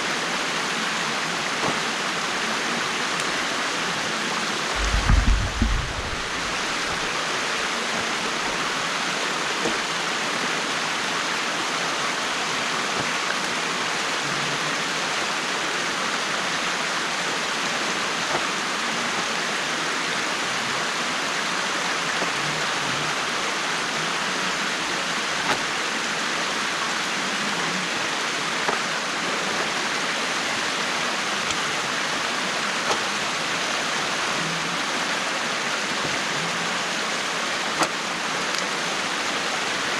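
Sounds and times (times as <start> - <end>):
water rushing: 0.0 - 39.9
low thump: 4.8 - 7.1.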